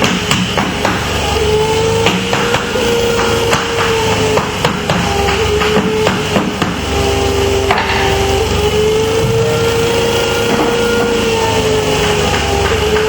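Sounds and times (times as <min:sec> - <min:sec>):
hammer tapping: 0:00.0 - 0:09.7
steady hum: 0:00.0 - 0:13.0.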